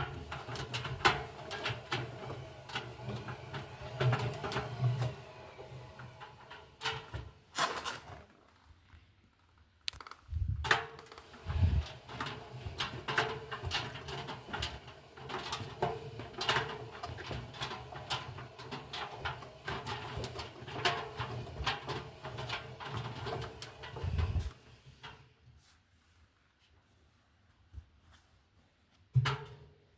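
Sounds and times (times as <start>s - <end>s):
washing machine motor humming: 0.0s - 7.5s, 11.2s - 24.6s
laundry tumbling clicks and thuds: 0.0s - 8.2s, 10.6s - 25.3s.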